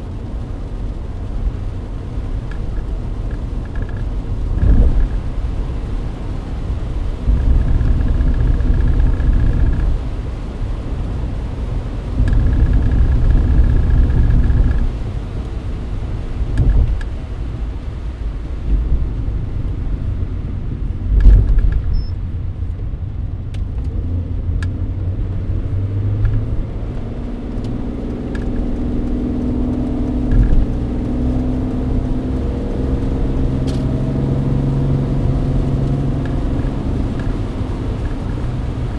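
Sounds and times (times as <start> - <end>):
car engine and tyres on wet road: 0.0 - 38.9.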